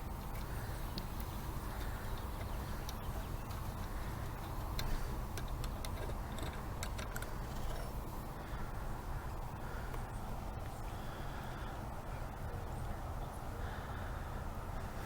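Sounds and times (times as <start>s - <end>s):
low background noise: 0.0s - 15.0s
light clicks and ticks: 0.2s - 8.1s.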